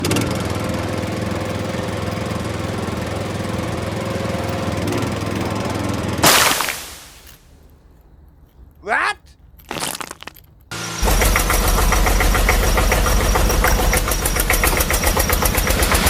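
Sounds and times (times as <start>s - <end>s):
engine running: 0.0s - 7.4s, 10.7s - 16.0s.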